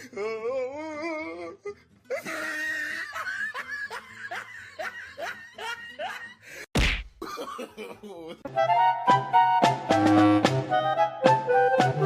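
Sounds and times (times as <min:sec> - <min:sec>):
person laughing hard: 0:02.1 - 0:08.5.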